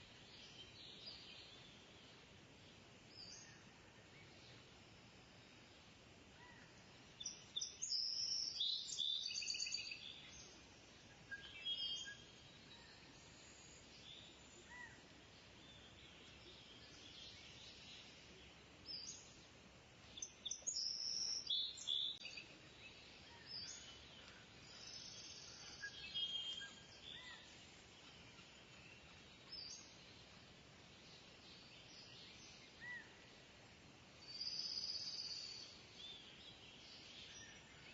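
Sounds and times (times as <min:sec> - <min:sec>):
faint background hiss: 0:00.0 - 0:37.9
birds chirping: 0:06.4 - 0:33.4.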